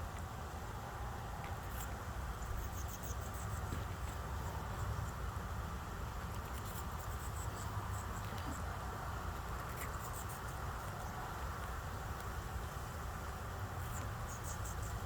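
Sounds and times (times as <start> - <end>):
low background hum: 0.0 - 15.0
parrot beak nibbling and scraping: 1.5 - 5.2, 6.2 - 8.7, 9.3 - 11.7.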